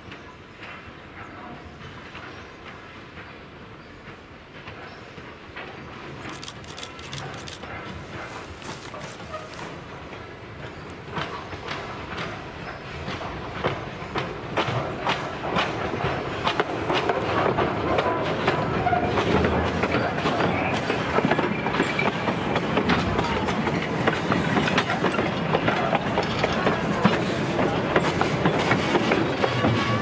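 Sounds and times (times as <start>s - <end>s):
train rumbling along track: 0.0s - 30.0s
wheels clicking over rail joints: 4.6s - 30.0s.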